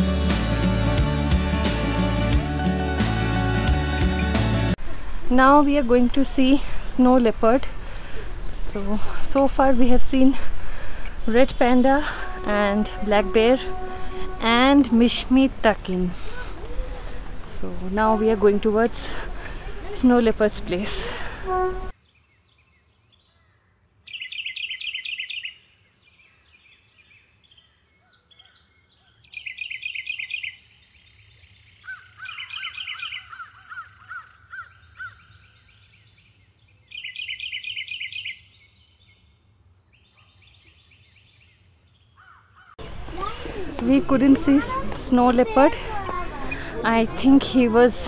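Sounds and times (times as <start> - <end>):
birds trilling: 28.0 - 41.3.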